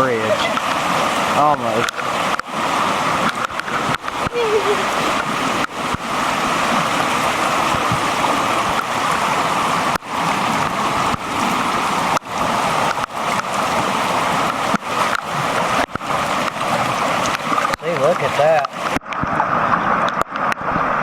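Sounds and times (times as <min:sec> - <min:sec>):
creek water rushing: 0:00.0 - 0:21.0.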